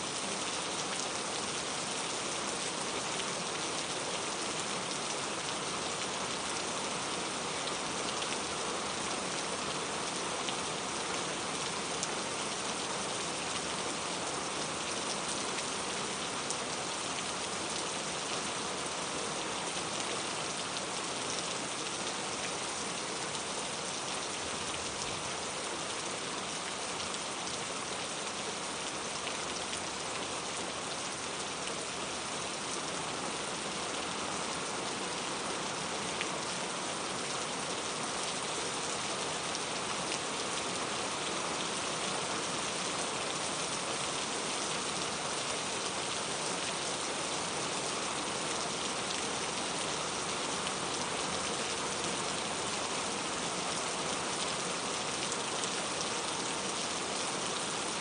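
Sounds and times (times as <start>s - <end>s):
steady rain pattering: 0.0s - 58.0s.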